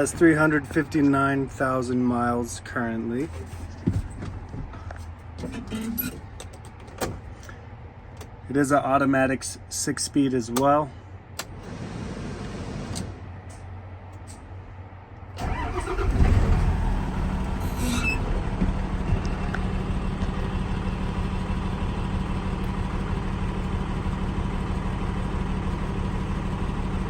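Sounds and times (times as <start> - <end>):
diesel engine idling: 10.6 - 27.0
engine starter cranking: 15.4 - 18.6.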